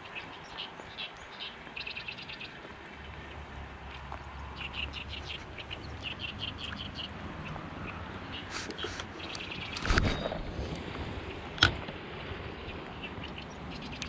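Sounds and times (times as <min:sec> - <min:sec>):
small bird chirping: 0:00.0 - 0:02.7, 0:03.9 - 0:10.0, 0:12.6 - 0:14.0
flowing river water: 0:00.0 - 0:14.0.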